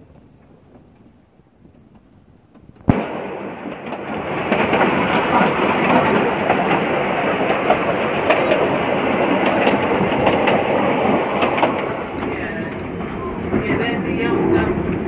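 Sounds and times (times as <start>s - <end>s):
train wheels rumbling on rail: 0.0s - 15.0s
track clicks: 3.6s - 15.0s.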